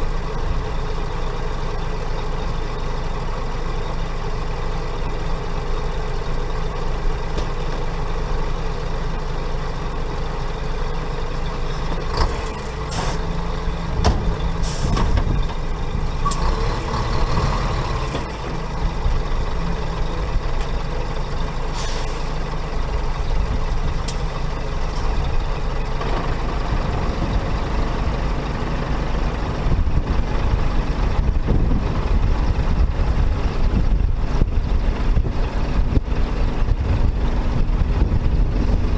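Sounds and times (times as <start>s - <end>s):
heavy diesel engine running: 0.0s - 38.9s
air brake hisses: 14.6s - 15.0s, 21.7s - 22.4s.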